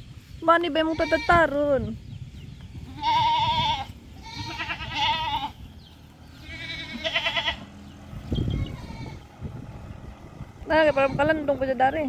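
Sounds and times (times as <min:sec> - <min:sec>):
goats bleating: 0:00.8 - 0:01.8, 0:02.8 - 0:09.3, 0:10.7 - 0:11.5.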